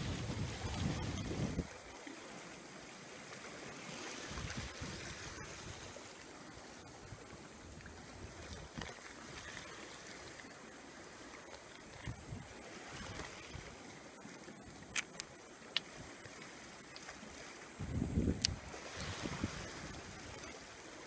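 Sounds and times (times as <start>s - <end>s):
wind on microphone: 0.0s - 1.8s, 4.3s - 6.0s, 11.9s - 13.8s, 17.8s - 20.7s
sea washing: 0.0s - 21.0s.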